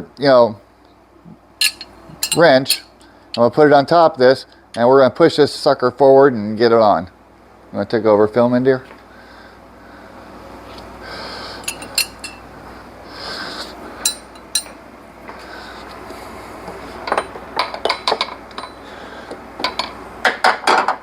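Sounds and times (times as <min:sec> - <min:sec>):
metal wrenches clinking: 0:01.6 - 0:02.9, 0:11.6 - 0:12.5, 0:14.1 - 0:14.8.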